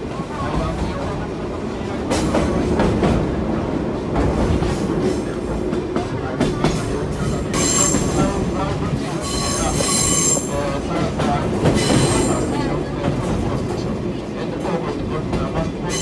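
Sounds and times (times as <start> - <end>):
train wheels rumbling on rails: 0.0 - 16.0
high-pitched wheel squeal: 9.2 - 10.7.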